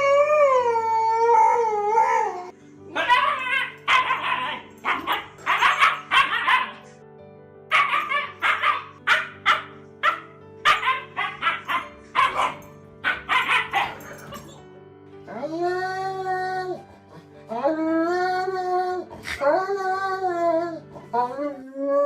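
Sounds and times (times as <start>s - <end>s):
background music: 0.0s - 22.0s
dog barking: 3.0s - 6.9s, 7.7s - 14.5s.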